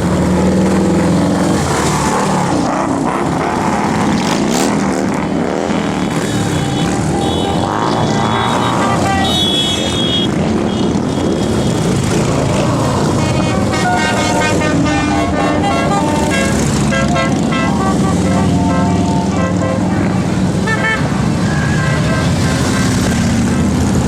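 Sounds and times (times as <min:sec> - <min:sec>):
motorcycle engines running: 0:00.0 - 0:24.0
horn toots: 0:05.9 - 0:23.2.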